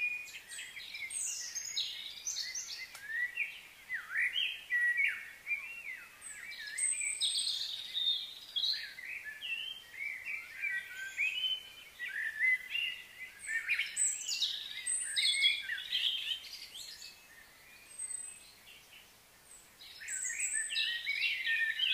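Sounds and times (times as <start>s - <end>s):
birds chirping: 0.0s - 21.9s.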